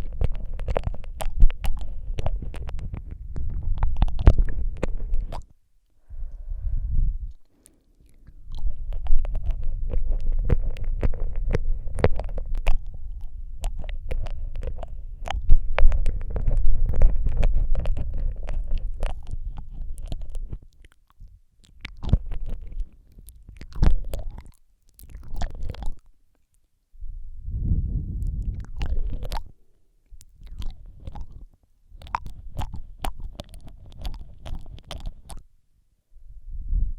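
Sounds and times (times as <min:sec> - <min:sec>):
wet mouth clicks and smacks: 0:00.0 - 0:06.4, 0:07.2 - 0:26.7, 0:28.2 - 0:35.5
low rumble: 0:27.0 - 0:29.6.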